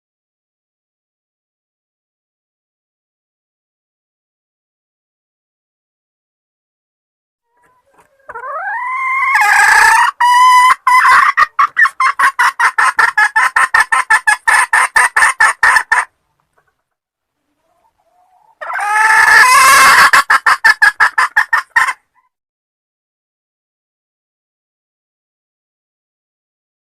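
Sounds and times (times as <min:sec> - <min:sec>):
junglefowl hen calling: 0:07.5 - 0:16.8, 0:17.4 - 0:22.4.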